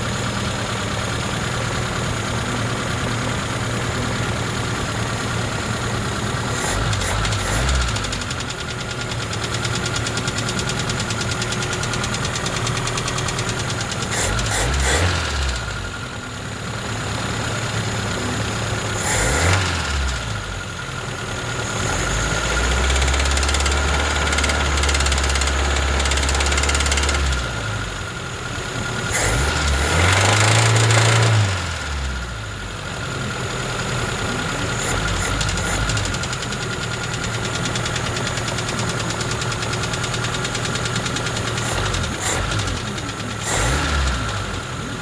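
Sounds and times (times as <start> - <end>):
engine running with rapid knock: 0.0 - 45.0.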